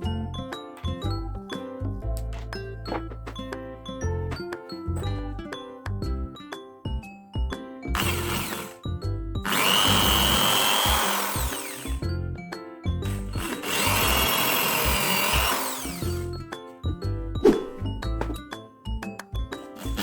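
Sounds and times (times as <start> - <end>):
background music: 0.0 - 20.0
electric drill whining: 7.9 - 12.1, 13.0 - 16.4, 19.8 - 20.0.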